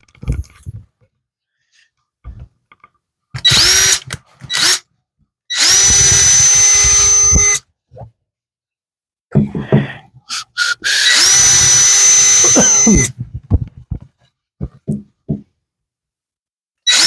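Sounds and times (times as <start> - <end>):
power drill whining: 3.4 - 4.9, 5.5 - 7.6, 10.3 - 13.2.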